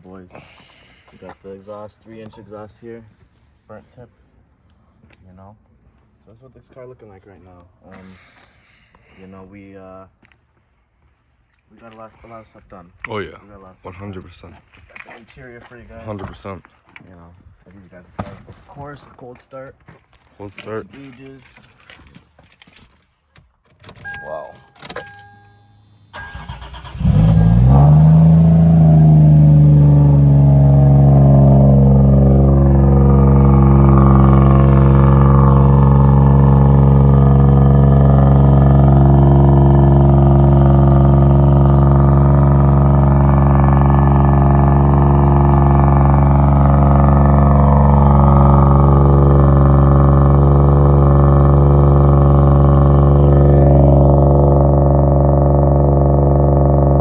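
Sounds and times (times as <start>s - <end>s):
car engine cranking: 23.8s - 57.0s
car engine revving and idling: 25.3s - 57.0s.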